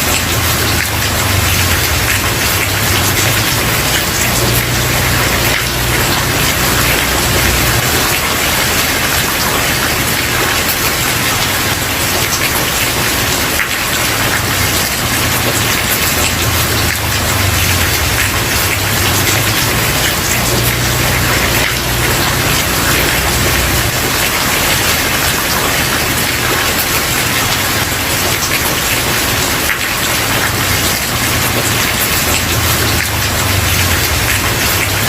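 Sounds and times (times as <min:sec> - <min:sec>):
rain on a wooden porch: 0:00.0 - 0:35.0.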